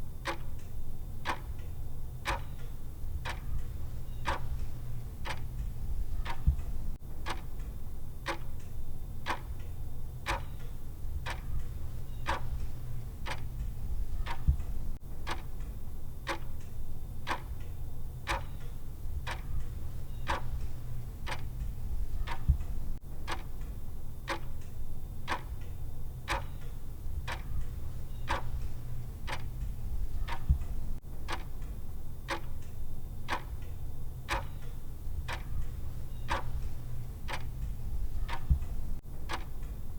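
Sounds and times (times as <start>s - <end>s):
clock ticking: 0.0s - 39.9s
steady low hum: 0.0s - 39.9s.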